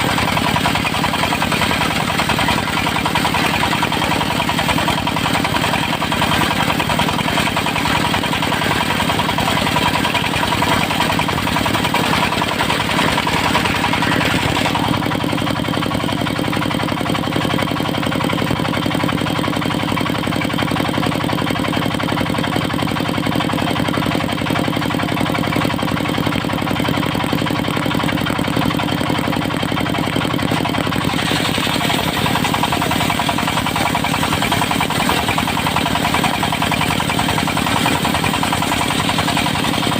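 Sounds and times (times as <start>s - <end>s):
diesel engine running: 0.0s - 39.9s
saw blade cutting wood: 10.5s - 15.2s, 30.5s - 39.9s.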